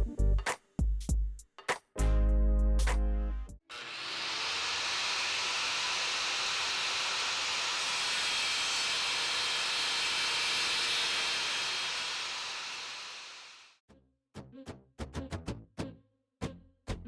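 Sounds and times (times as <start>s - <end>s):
circular saw running: 3.7s - 13.8s.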